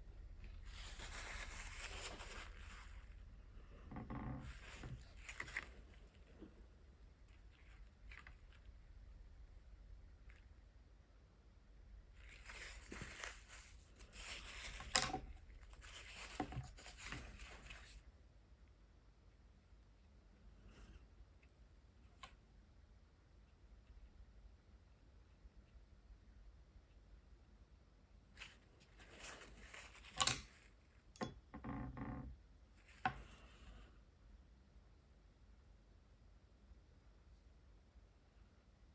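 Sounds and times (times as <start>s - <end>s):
scratchy rustling of art supplies: 0.1s - 9.2s, 12.1s - 18.1s, 28.4s - 31.1s
small clicks and knocks: 14.2s - 17.8s, 29.1s - 33.4s.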